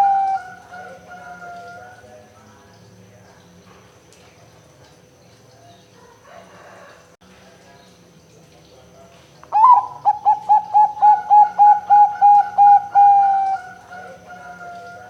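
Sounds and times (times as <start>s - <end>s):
dove cooing: 0.0s - 2.1s, 9.5s - 15.0s.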